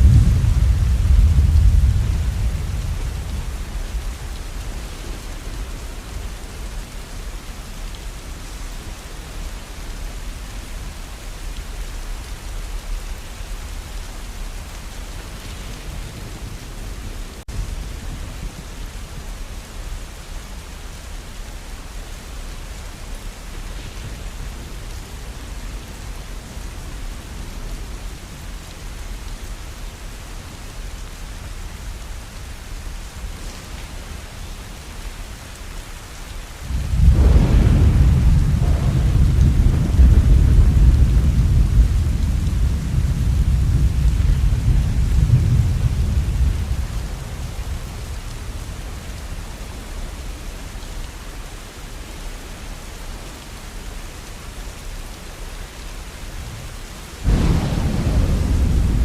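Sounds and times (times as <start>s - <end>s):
thunder rumbling: 0.0s - 7.1s, 36.6s - 50.0s, 57.2s - 59.0s
steady rain falling: 0.0s - 59.0s.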